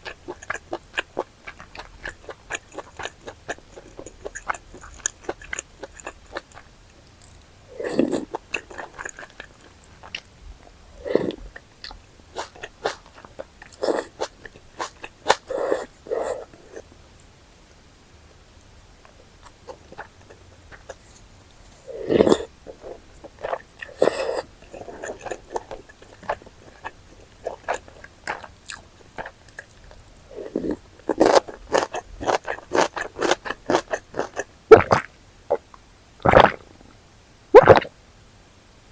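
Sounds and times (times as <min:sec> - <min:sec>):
wet chewing and biting: 0:11.2 - 0:16.3, 0:31.1 - 0:35.0.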